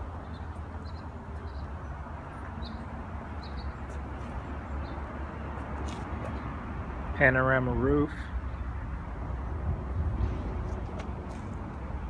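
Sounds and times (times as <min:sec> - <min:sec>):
small birds chirping: 0:00.2 - 0:05.1.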